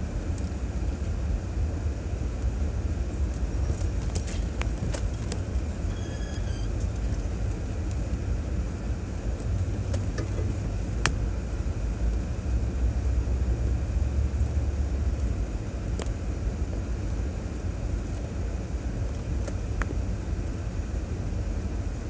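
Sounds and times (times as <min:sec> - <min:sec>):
engine and tyres rumbling: 0:00.0 - 0:22.0
sharp clicks and knocks: 0:09.4 - 0:11.2.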